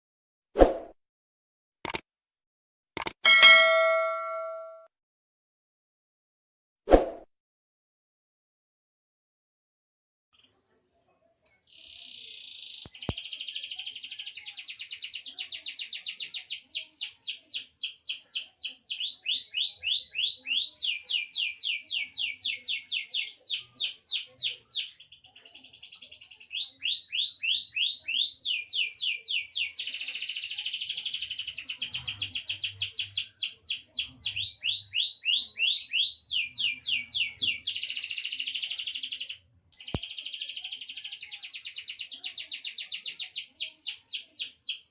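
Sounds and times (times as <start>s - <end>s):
canary singing trills: 11.8s - 44.9s.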